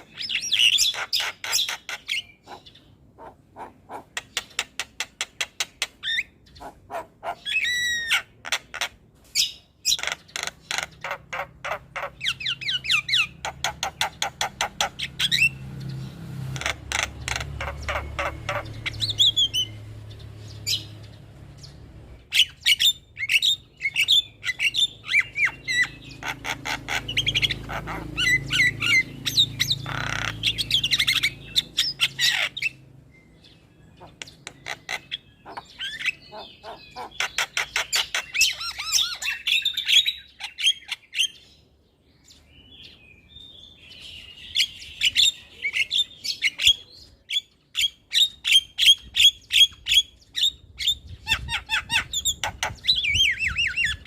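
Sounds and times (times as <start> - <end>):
harsh squawking chatter: 16.6 - 19.8, 23.2 - 32.9.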